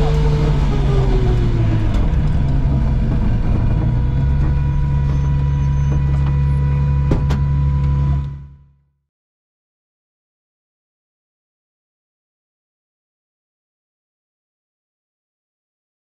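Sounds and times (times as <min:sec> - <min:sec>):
car engine running: 0:00.0 - 0:08.8.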